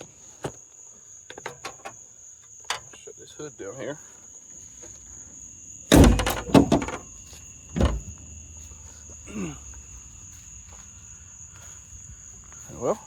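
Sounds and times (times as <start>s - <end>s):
crickets trilling: 0.0s - 13.0s
car hood slamming shut: 5.9s - 7.1s, 7.7s - 8.2s.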